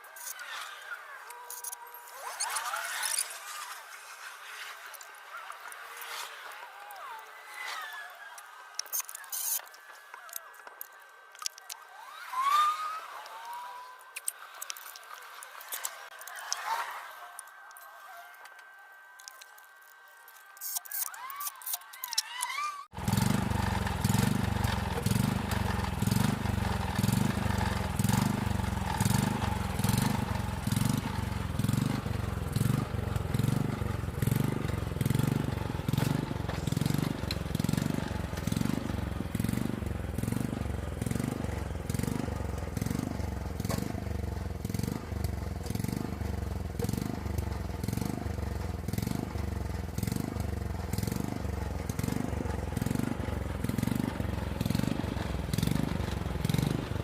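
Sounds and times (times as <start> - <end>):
small gasoline engine running: 7.6 - 16.7, 22.9 - 57.0.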